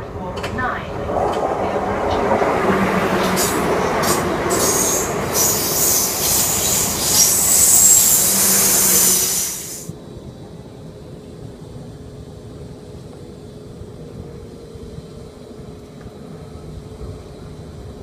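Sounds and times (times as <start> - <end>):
train wheels rumbling on rails: 0.0 - 9.9
high-pitched wheel squeal: 3.2 - 9.9.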